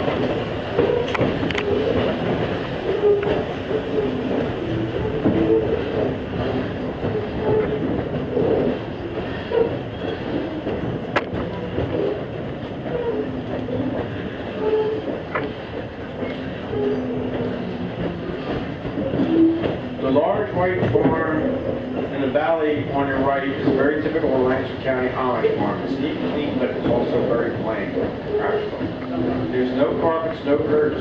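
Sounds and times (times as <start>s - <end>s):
coach rattling and creaking: 0.0s - 31.0s
train wheels rumbling on rails: 0.0s - 31.0s
short squeaks: 7.2s - 7.8s.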